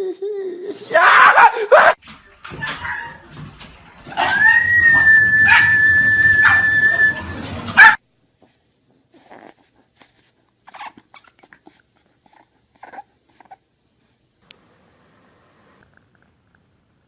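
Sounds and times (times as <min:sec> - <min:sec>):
dogs barking: 0:01.1 - 0:02.0, 0:04.1 - 0:08.0
puppy whimpering: 0:09.1 - 0:10.1, 0:10.7 - 0:13.6.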